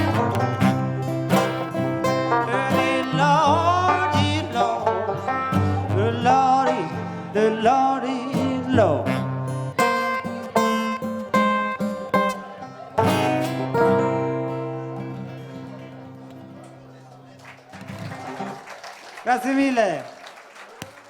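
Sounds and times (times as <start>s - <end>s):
banjo playing: 0.0s - 17.3s
acoustic guitar playing blues: 0.0s - 18.5s.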